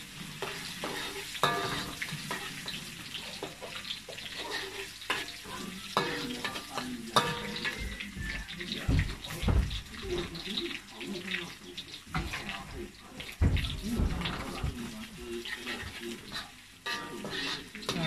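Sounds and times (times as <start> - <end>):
metal spatula scraping wok: 0.0 - 8.8, 15.3 - 18.0
food sizzling in hot oil: 0.0 - 18.0.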